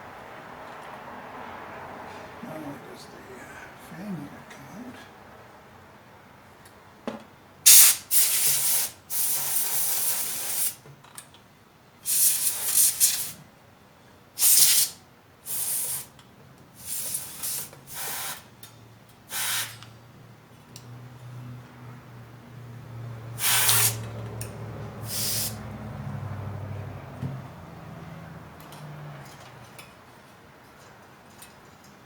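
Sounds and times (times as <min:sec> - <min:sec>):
pressurised spray hissing: 0:07.7 - 0:10.8, 0:12.1 - 0:13.4, 0:14.4 - 0:14.9, 0:15.5 - 0:16.1, 0:16.8 - 0:18.4, 0:23.4 - 0:24.0, 0:25.0 - 0:25.6.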